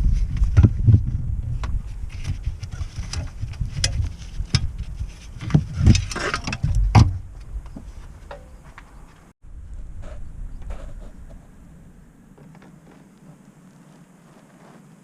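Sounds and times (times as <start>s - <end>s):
rustling scrape: 1.8s - 6.9s, 7.8s - 11.8s, 12.4s - 15.0s.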